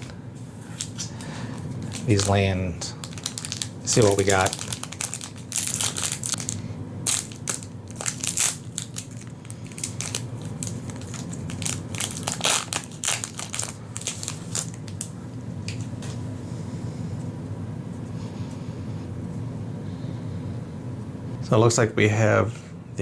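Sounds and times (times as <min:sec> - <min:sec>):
plastic wrapping crinkling: 0:00.0 - 0:16.1.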